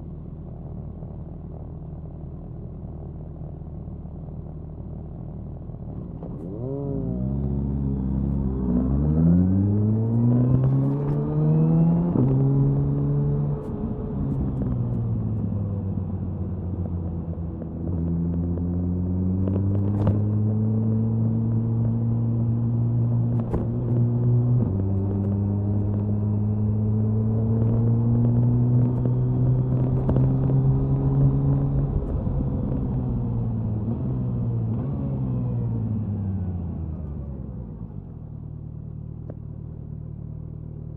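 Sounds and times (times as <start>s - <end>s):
motorcycle exhaust accelerating: 4.7s - 37.3s.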